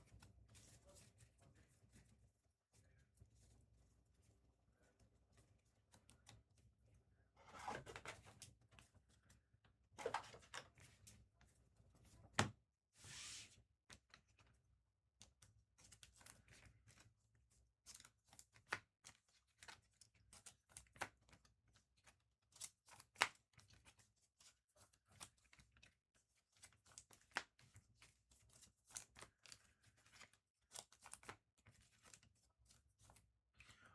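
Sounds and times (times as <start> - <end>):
cards clicking and tapping: 26.6 - 32.2.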